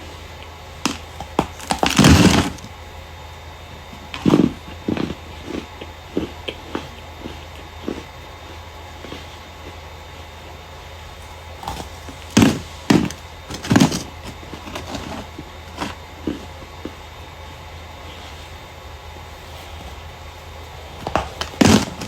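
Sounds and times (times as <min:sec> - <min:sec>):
starch crunching: 0:00.4 - 0:02.7, 0:11.0 - 0:17.1, 0:19.4 - 0:22.0.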